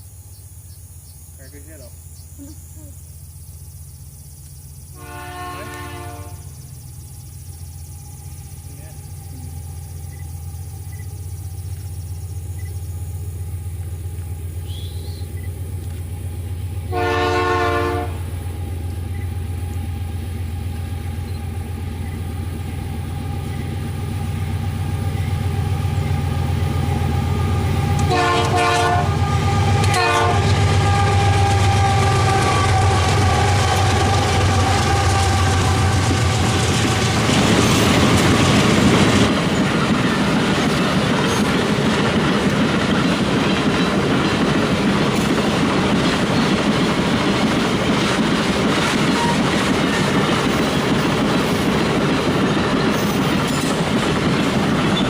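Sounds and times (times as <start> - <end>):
locomotive engine drone: 0.0 - 55.0
train horn: 5.0 - 6.6, 16.8 - 18.4, 26.8 - 37.3, 49.0 - 49.6
wagon wheels rumbling on rails: 20.4 - 55.0.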